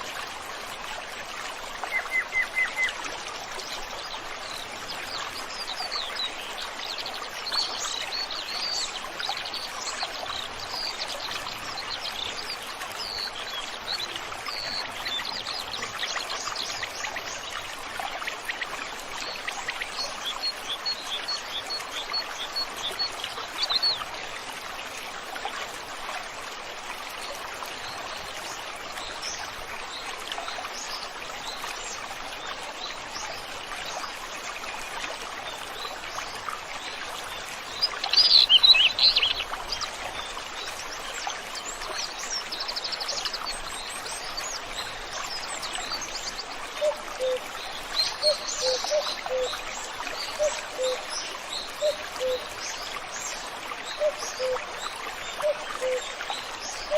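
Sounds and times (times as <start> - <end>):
stream flowing: 0.0 - 56.9
birds calling and singing: 37.6 - 56.9.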